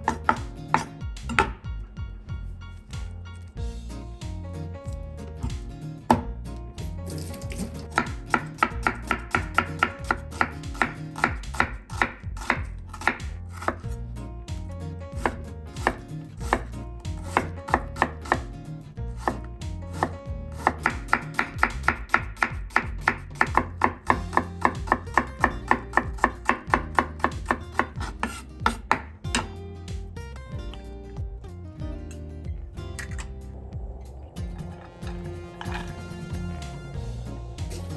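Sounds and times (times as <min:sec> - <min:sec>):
knife chopping vegetables: 0:00.0 - 0:01.8, 0:05.3 - 0:06.4, 0:07.0 - 0:18.5, 0:19.1 - 0:29.6.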